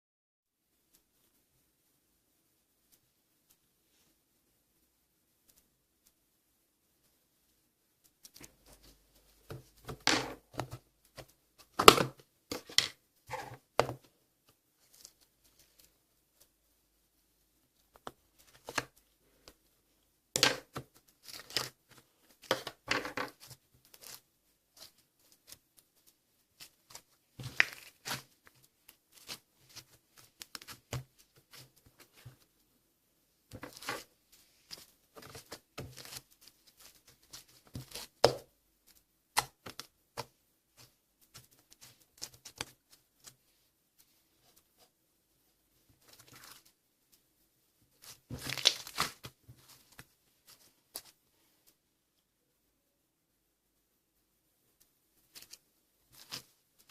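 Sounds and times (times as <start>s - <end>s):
slime crackling and popping: 48.4s - 49.2s.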